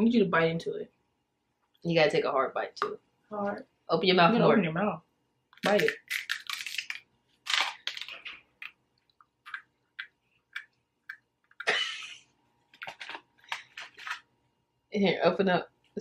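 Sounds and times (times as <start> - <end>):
person chewing: 5.5 - 11.7.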